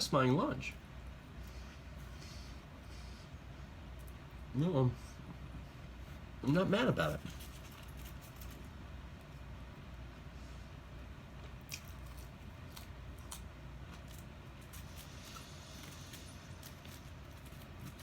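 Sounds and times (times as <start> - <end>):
low steady hum: 0.0 - 18.0
man chewing food: 11.1 - 18.0.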